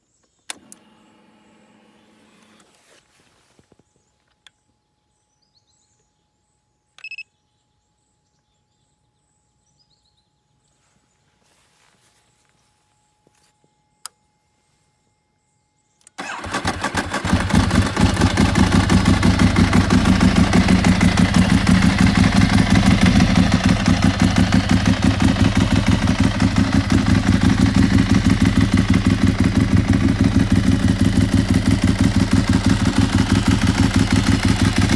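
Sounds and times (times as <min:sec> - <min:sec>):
starter click: 0:00.5 - 0:00.9
motorcycle engine idling: 0:16.2 - 0:34.9.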